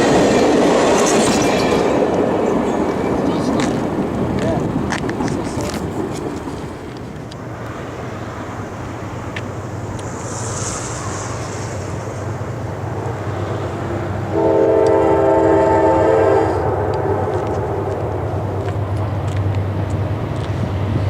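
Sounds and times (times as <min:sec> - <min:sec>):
train running: 0:00.0 - 0:21.0
locomotive horn blast: 0:14.2 - 0:16.9.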